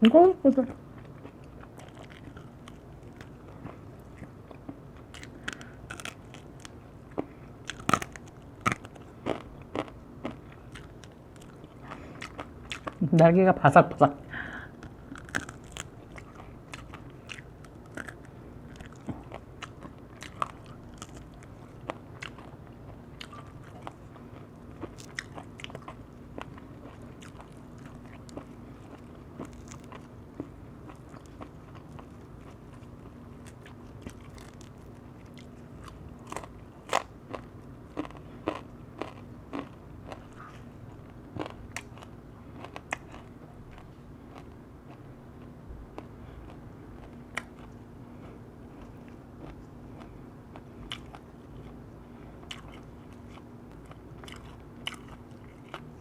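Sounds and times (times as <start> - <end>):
crunching chicken wing: 7.6 - 13.0, 14.8 - 45.5.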